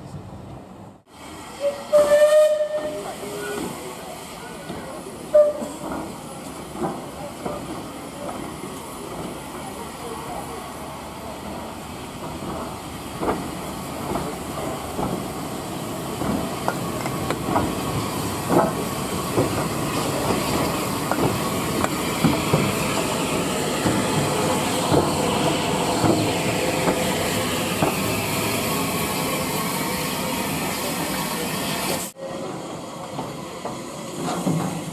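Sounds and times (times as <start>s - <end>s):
hiss of steam: 1.1s - 32.2s
wheels clicking over rail joints: 16.2s - 23.0s.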